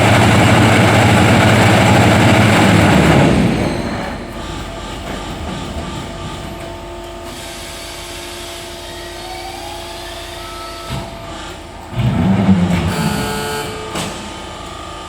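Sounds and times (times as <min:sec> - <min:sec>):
machine mechanical hum: 0:00.0 - 0:15.0
high whining tones: 0:07.8 - 0:15.0.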